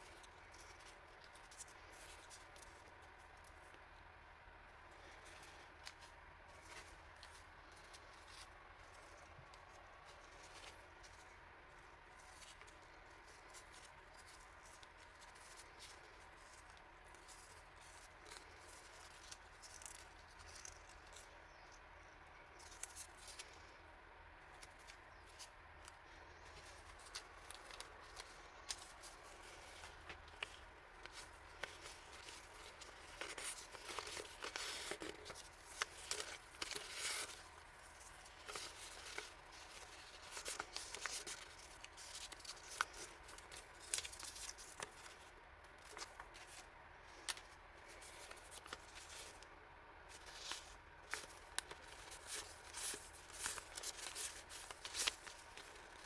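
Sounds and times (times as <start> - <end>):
paper packaging rustling and tearing: 24.5 - 49.5, 50.1 - 56.0.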